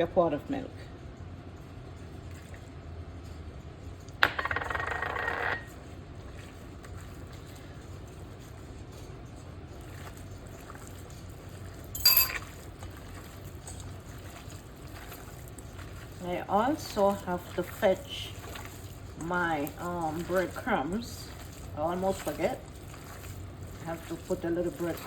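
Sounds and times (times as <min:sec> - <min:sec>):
milk pouring into bowl: 0:05.8 - 0:25.0
sharp clink: 0:12.0 - 0:12.4.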